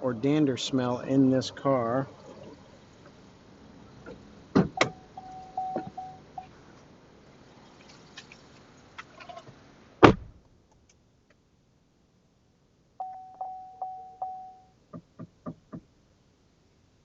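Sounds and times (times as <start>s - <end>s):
car door shutting: 4.0s - 6.2s, 9.2s - 10.3s
electronic chime: 4.8s - 6.5s, 13.0s - 14.7s.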